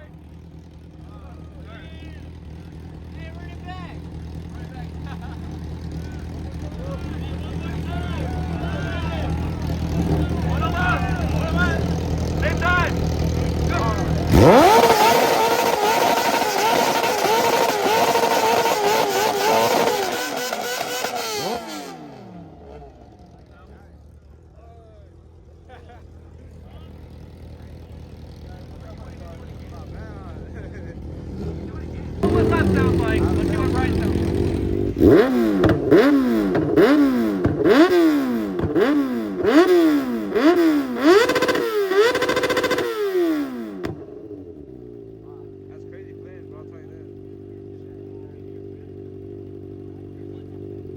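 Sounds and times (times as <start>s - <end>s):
car engine bouncing on rev limiter: 0.0s - 23.7s, 26.8s - 48.1s
exhaust pops: 31.6s - 44.4s.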